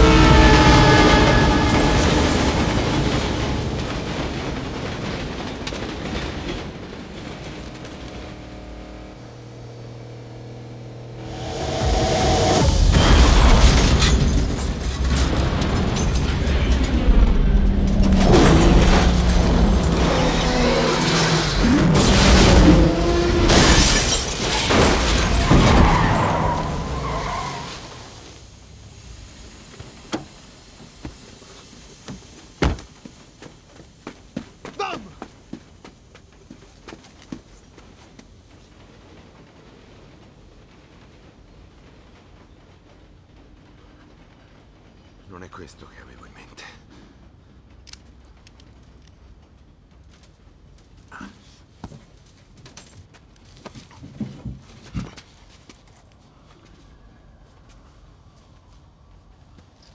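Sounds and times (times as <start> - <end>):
metal and glass smashing: 0.0 - 9.0, 11.2 - 28.2
debris clinking: 0.0 - 28.2
train rumbling and clattering past: 0.0 - 34.6, 35.2 - 59.9
tyres skidding: 0.0 - 38.5
low steady hum: 7.2 - 20.8.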